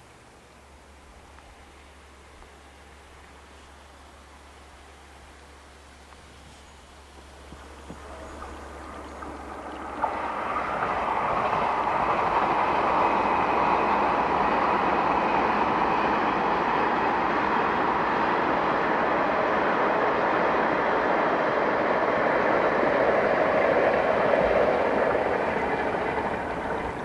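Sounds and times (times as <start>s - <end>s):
electric train rushing past: 7.4s - 27.0s.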